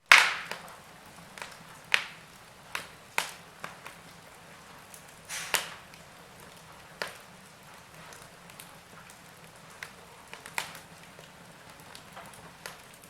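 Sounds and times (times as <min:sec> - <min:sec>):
fire crackling and popping: 0:00.0 - 0:13.0
faint hiss: 0:02.0 - 0:08.8.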